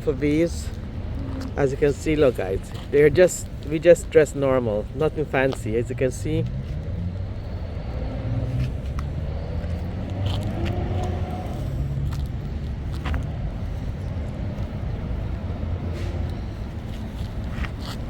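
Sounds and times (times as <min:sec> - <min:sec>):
road traffic rumble: 0:00.0 - 0:18.0
car engine revving: 0:06.2 - 0:13.4.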